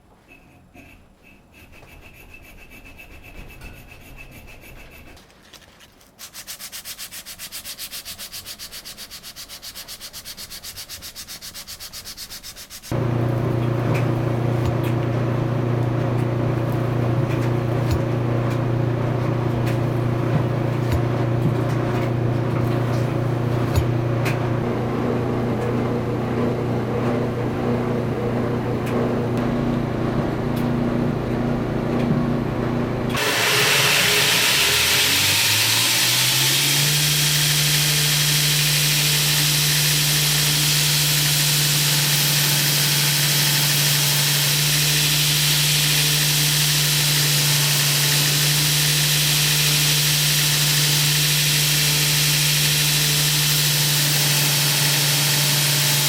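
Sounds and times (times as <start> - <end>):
hand sanding hiss: 0.4 - 13.0
electric sander motor humming: 12.9 - 18.8, 33.2 - 56.0.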